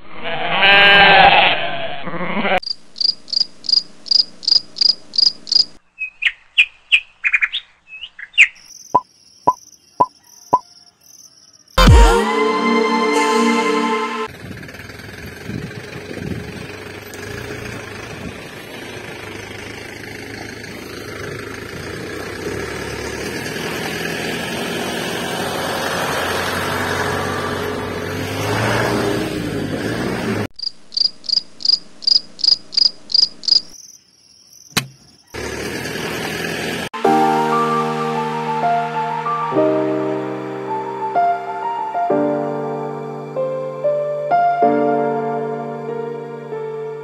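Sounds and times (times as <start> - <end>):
high cricket-like chirps: 2.6 - 5.8, 8.6 - 11.8, 30.6 - 35.4
single click: 34.7 - 35.0.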